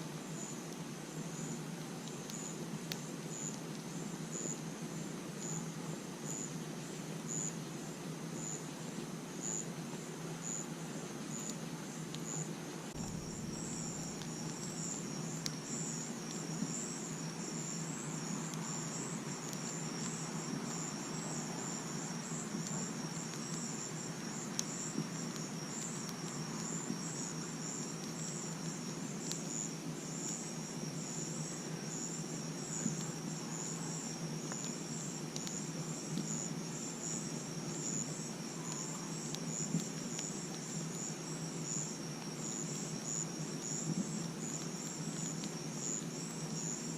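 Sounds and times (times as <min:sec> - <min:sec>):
crickets chirping: 0:00.2 - 0:46.9
campfire crackling: 0:11.3 - 0:46.9
fire popping: 0:12.9 - 0:17.5.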